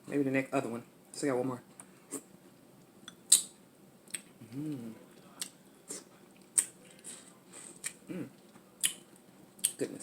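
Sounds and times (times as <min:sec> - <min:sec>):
person humming mm: 0:04.4 - 0:05.0.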